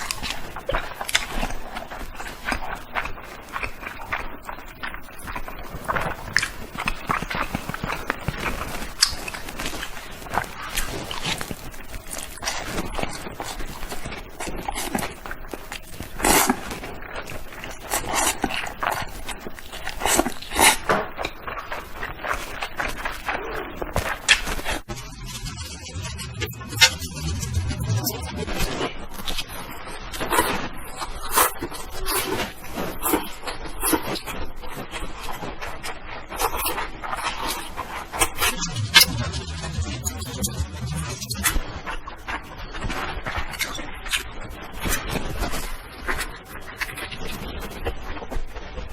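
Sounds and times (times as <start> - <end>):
low steady hum: 24.9 - 28.8, 38.2 - 41.6.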